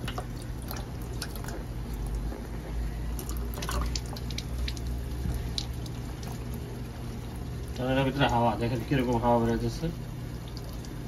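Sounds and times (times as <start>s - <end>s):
water spitting and dripping: 0.0s - 8.4s, 10.2s - 11.0s
pump humming: 0.0s - 11.0s.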